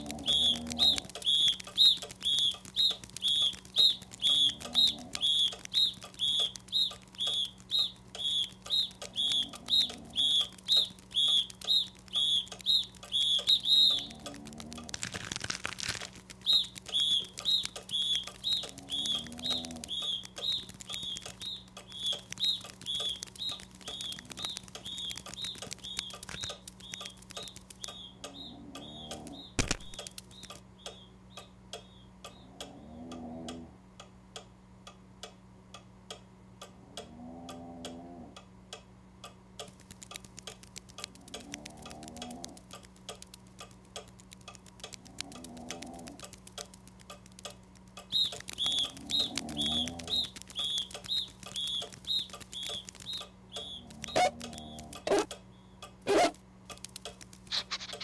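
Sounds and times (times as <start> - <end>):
low warbling calls: 0.0 - 30.5, 48.1 - 55.3, 57.5 - 58.0
faint steady ticking: 0.0 - 58.0
sharp click: 28.9 - 31.0, 39.6 - 58.0.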